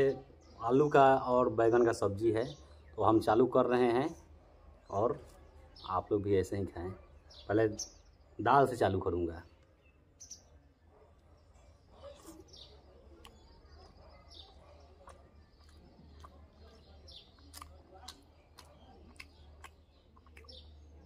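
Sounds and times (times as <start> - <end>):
bird chirps: 0.0 - 21.0
person chewing food: 11.8 - 21.0.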